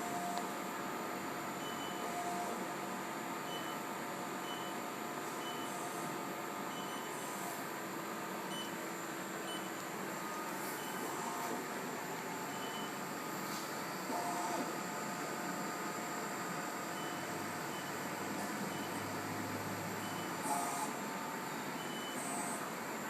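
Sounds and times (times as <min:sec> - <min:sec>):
machine hum and hiss: 0:00.0 - 0:23.0.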